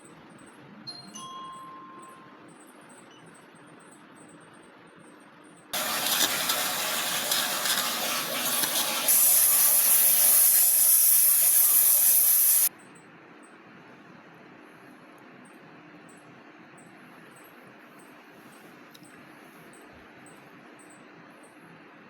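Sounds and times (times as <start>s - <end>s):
air-water syringe hissing: 5.8s - 12.7s.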